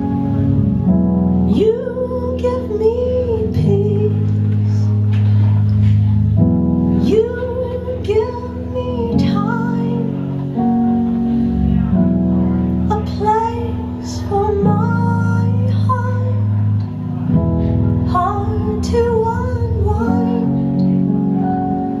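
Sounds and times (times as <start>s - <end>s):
keyboard chords: 0.0s - 22.0s
woman singing: 1.5s - 4.9s, 7.0s - 10.3s, 12.9s - 16.8s, 18.0s - 20.8s.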